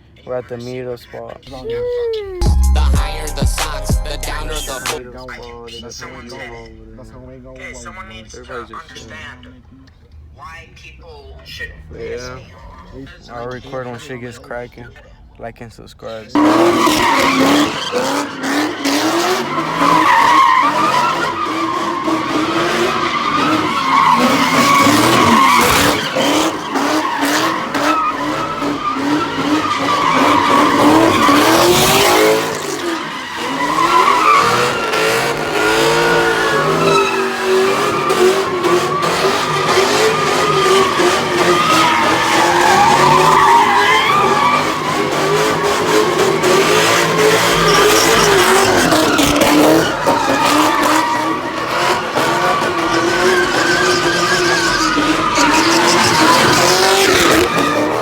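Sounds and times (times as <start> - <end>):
car engines revving: 16.4 - 58.0
tyres squealing: 16.4 - 58.0.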